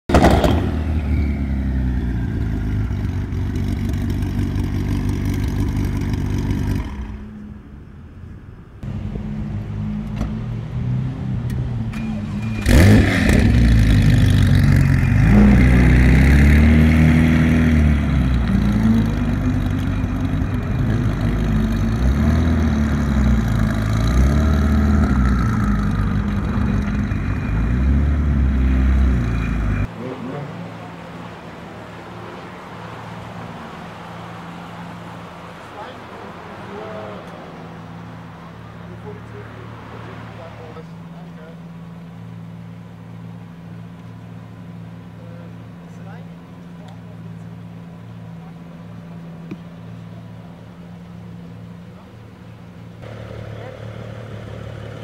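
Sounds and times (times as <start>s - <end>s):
sports car engine idling: 1.8s - 10.8s, 17.7s - 24.2s, 36.7s - 55.0s
engine revving: 8.8s - 34.3s.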